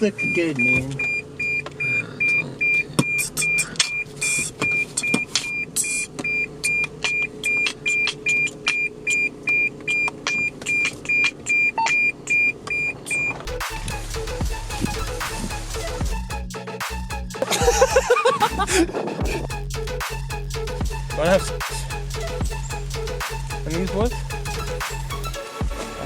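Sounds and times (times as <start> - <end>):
car warning chime beeping: 0.0 - 13.6
music: 13.5 - 26.0.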